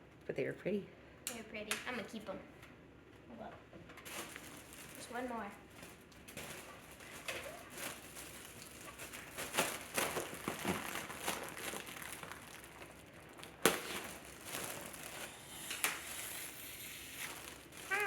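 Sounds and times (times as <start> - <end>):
balloon crinkling: 4.0 - 18.0.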